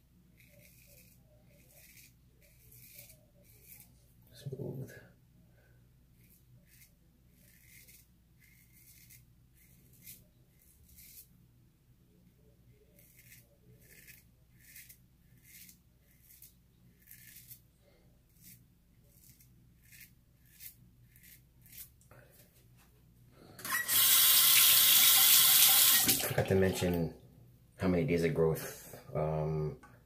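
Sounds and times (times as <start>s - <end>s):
razor scraping whiskers: 0.3s - 4.6s, 6.2s - 11.3s, 12.9s - 17.7s, 18.3s - 22.0s.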